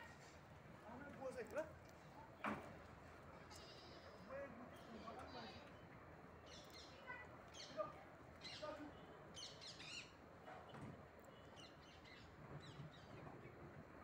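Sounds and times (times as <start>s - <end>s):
small birds chirping: 3.3s - 13.6s.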